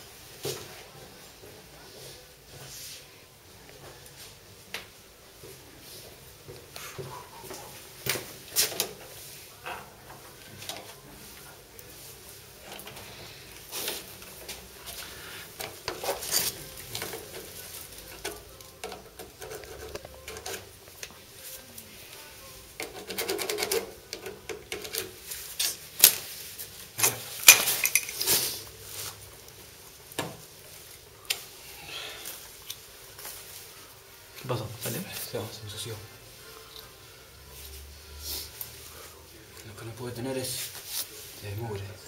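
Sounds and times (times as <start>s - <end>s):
metal tools clinking: 27.0s - 28.4s.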